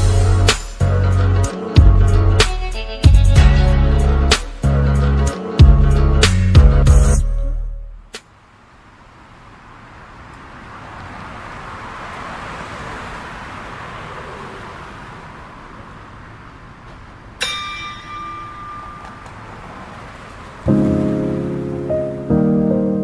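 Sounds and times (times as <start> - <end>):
bell-like ding: 17.4 - 19.6.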